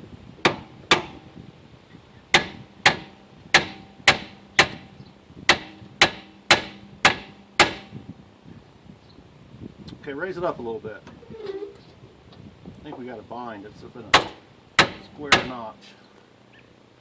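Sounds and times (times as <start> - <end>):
hammer striking steel: 2.4 - 4.9, 5.5 - 8.0, 14.2 - 15.6.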